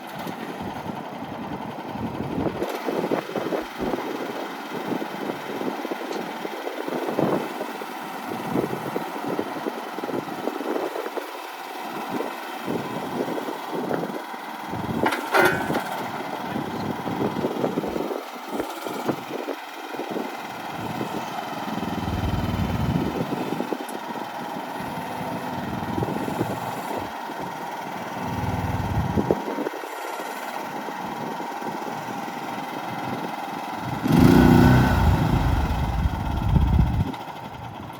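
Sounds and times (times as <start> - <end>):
excavator engine idling: 0.0 - 37.9
low rumbling: 21.8 - 23.4, 28.2 - 29.4, 33.8 - 37.1.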